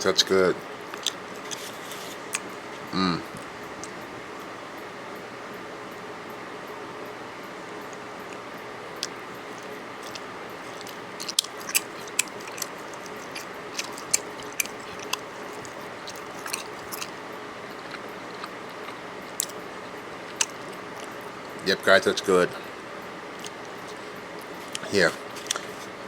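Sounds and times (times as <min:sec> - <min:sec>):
steady background hum: 0:00.0 - 0:26.0
person chewing: 0:00.9 - 0:04.0, 0:09.0 - 0:21.6, 0:23.3 - 0:25.9.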